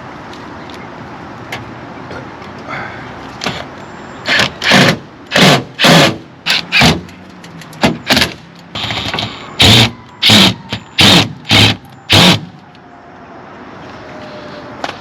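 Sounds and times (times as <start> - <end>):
cordless drill driving screws: 8.8 - 12.4.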